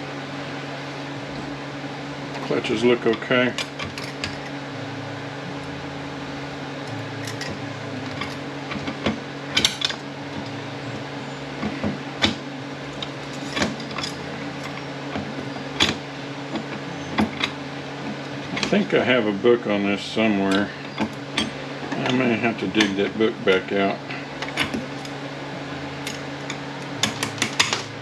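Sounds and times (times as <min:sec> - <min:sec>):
steady low hum: 0:00.0 - 0:28.0
metal parts clinking and clattering: 0:03.5 - 0:04.6, 0:07.2 - 0:10.6, 0:13.0 - 0:17.6, 0:26.0 - 0:28.0.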